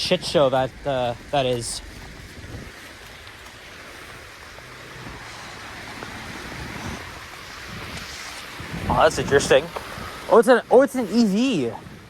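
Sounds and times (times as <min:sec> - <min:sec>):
engine hum: 0:00.0 - 0:11.3
tyres hissing on slush: 0:00.0 - 0:12.0.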